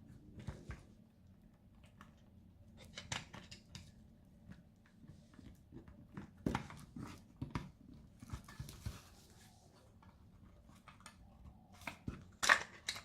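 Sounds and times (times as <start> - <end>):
plastic parts clicking and knocking: 1.7 - 9.0, 9.9 - 13.0.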